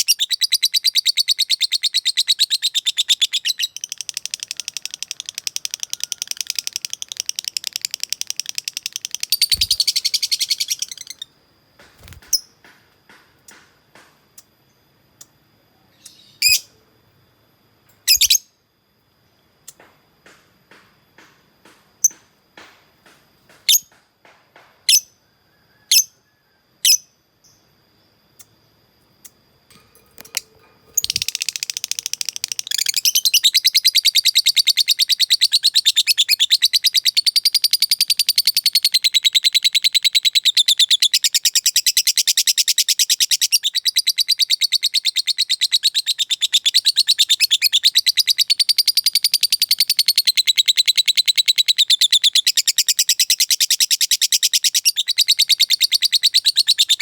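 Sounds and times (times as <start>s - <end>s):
lovebird rapid chattering trill: 0.0s - 11.3s, 30.2s - 57.0s
lovebird sharp chirps: 0.0s - 11.3s, 15.9s - 16.7s, 18.0s - 18.5s, 30.2s - 57.0s.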